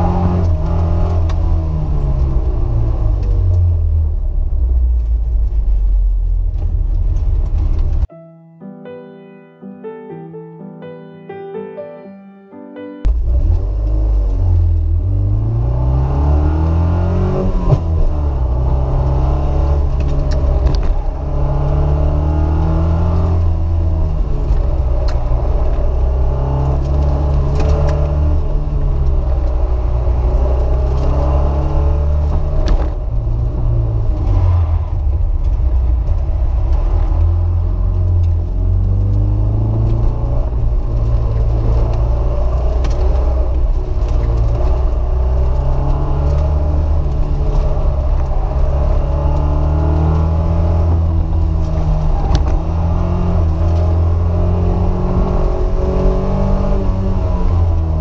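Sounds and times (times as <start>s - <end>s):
car engine revving: 13.1s - 58.0s.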